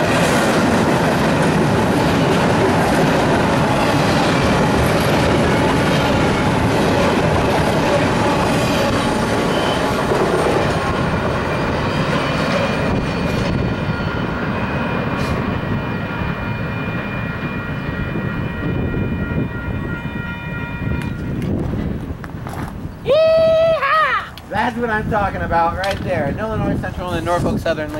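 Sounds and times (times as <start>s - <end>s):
freight train wheels rumbling: 0.0s - 23.8s, 24.4s - 27.9s
high-pitched ringing: 3.7s - 21.4s.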